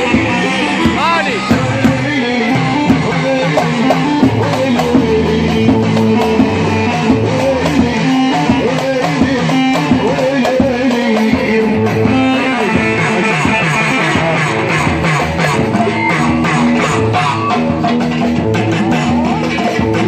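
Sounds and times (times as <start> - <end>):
drum beat: 0.0 - 20.0
live band music: 0.0 - 20.0
sliding lead melody: 0.0 - 20.0.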